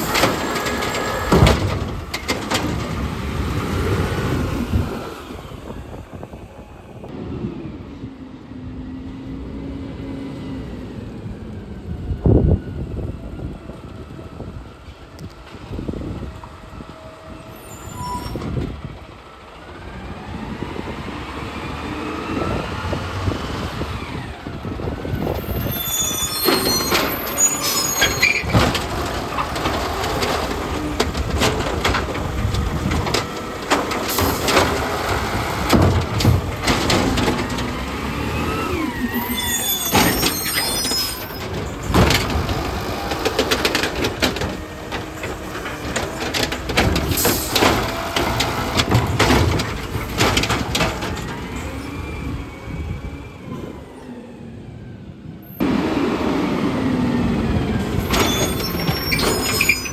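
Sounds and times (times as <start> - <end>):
garbage truck whine: 0.0 - 59.9
metallic knocks and clatter: 28.0 - 37.9, 41.3 - 51.6.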